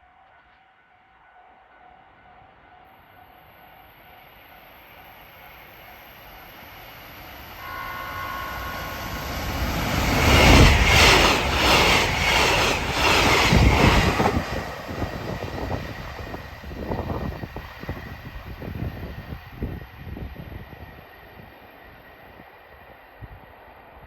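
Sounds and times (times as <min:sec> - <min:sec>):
electric train passing: 0:01.1 - 0:24.0
short steady tone: 0:07.6 - 0:09.7.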